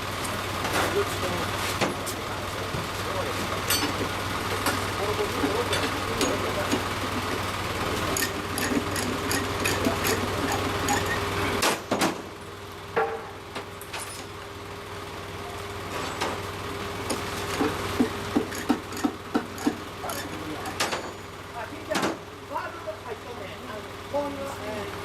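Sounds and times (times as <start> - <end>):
steady motor hum: 0.0 - 25.0.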